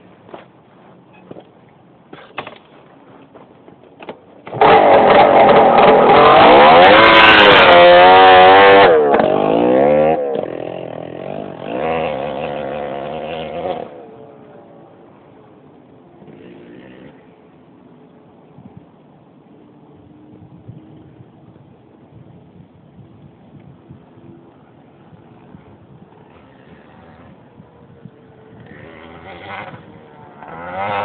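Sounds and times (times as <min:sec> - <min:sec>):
two-stroke motorcycle engine revving: 0:04.4 - 0:14.2, 0:16.2 - 0:17.3, 0:25.2 - 0:31.0.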